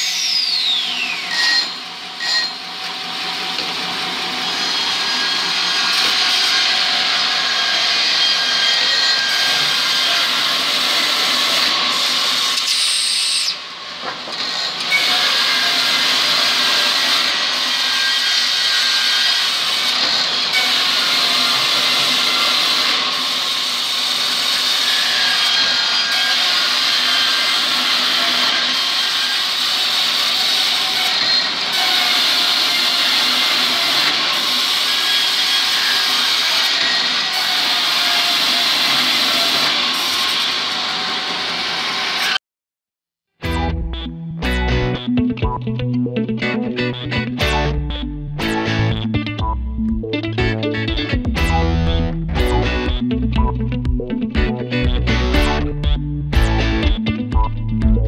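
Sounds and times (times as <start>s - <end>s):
woodworking machinery whirring: 0.0s - 42.4s.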